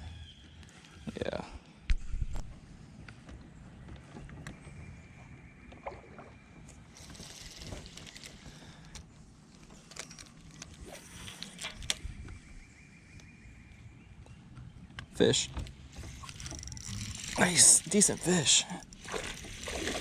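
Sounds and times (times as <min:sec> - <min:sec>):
low rumble of wind and water: 0:01.2 - 0:20.0
knocks and clicks of gear: 0:14.2 - 0:18.2.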